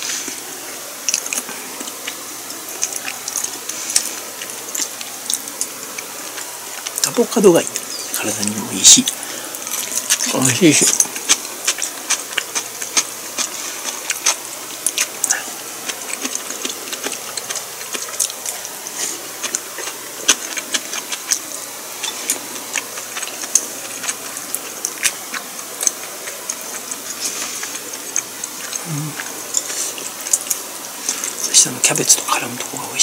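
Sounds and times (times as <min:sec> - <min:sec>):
person chewing food: 0:00.0 - 0:07.1, 0:07.7 - 0:32.7.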